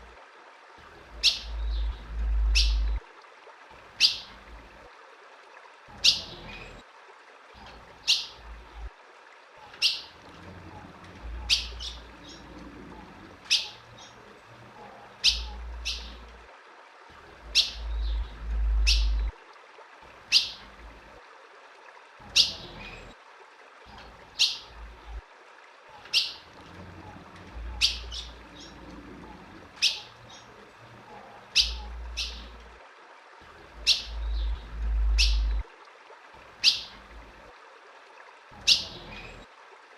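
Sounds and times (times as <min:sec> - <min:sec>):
low rumble: 0:01.5 - 0:03.0, 0:17.8 - 0:19.3, 0:34.1 - 0:35.6.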